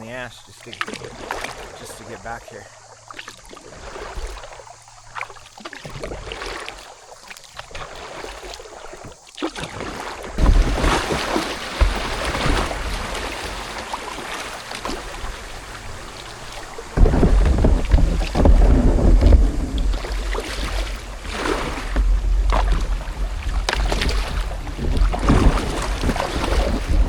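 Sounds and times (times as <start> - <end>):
kayak paddle strokes: 0.0 - 27.0
water dripping and splashing: 0.1 - 27.0
wind rumble on microphone: 14.7 - 27.0.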